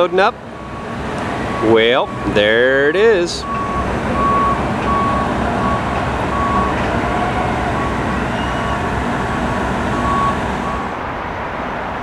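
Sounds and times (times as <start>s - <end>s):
backup alarm beeping: 0.2s - 12.0s
vehicle engine running: 3.2s - 12.0s.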